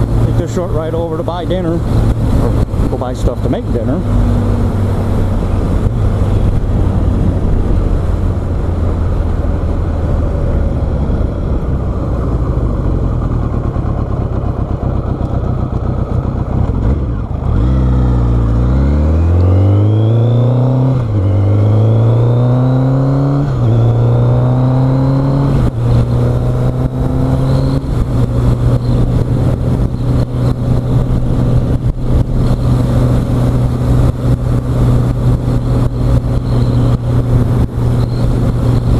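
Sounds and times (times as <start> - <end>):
motorcycle engine shifting gears: 0.0 - 38.9.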